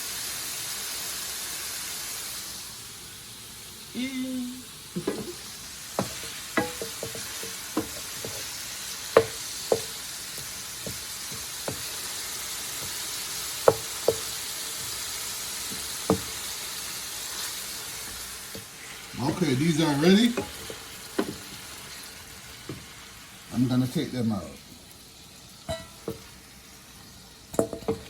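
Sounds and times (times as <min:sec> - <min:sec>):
shrimp sizzling in a pan: 0:00.0 - 0:28.0
utensil tapping a pan: 0:05.0 - 0:15.0, 0:15.6 - 0:16.5, 0:19.8 - 0:21.6, 0:25.7 - 0:26.3, 0:27.5 - 0:28.0.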